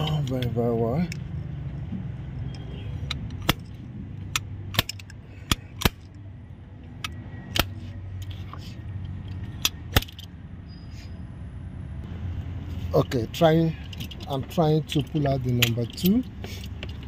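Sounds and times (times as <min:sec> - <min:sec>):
metallic tool clicks and clinks: 0:13.0 - 0:17.0.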